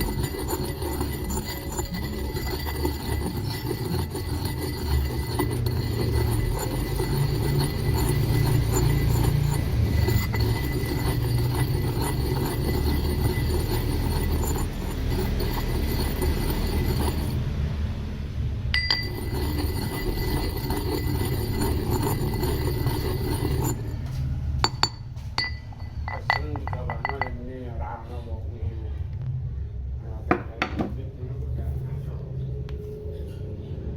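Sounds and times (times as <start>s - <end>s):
ringing glassy clinks: 18.8s - 23.9s, 24.6s - 27.4s.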